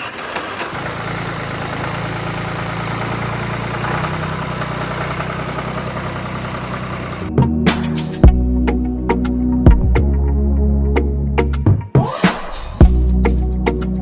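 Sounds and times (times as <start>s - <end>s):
small engine running: 0.0s - 7.3s.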